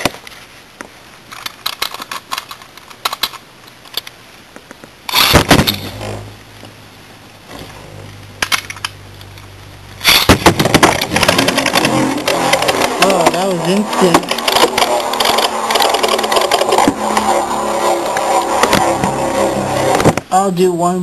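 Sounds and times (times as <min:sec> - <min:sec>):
spinning tops humming: 0:05.1 - 0:20.3
rattle of collision: 0:10.0 - 0:13.4.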